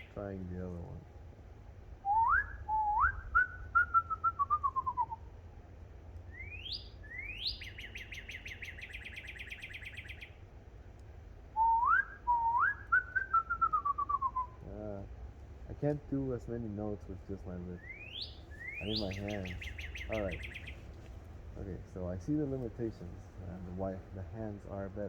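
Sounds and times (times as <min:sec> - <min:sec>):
bird call with trill: 0:00.0 - 0:00.2, 0:02.0 - 0:05.3, 0:06.3 - 0:10.4, 0:11.6 - 0:14.6, 0:17.8 - 0:20.9
person whistling bird call: 0:02.1 - 0:05.2, 0:11.6 - 0:14.6.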